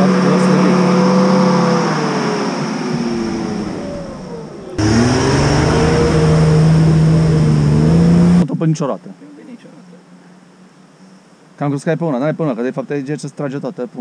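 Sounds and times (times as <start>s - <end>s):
off-road car engine revving hard: 0.0s - 8.4s.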